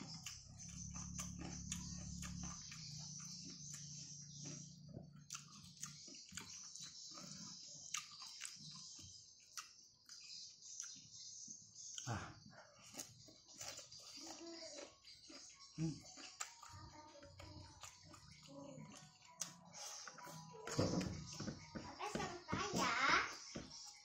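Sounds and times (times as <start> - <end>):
close-up chewing with lip smacks: 0.0 - 11.1, 12.8 - 20.8.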